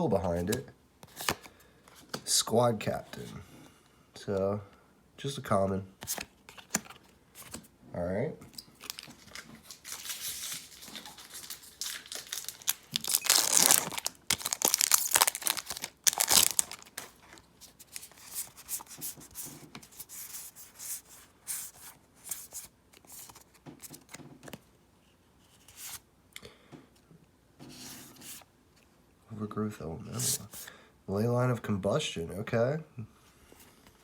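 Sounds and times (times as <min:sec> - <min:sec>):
wrapper tearing and crinkling: 0:08.8 - 0:18.6.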